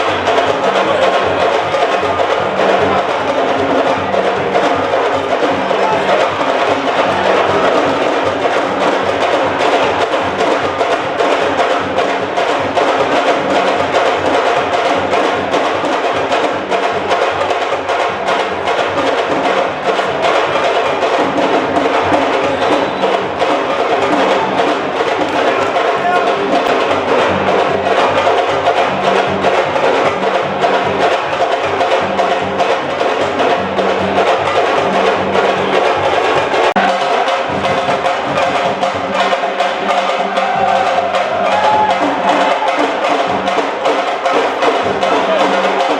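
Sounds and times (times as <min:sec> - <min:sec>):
fast dense drumming: 0:00.0 - 0:45.9.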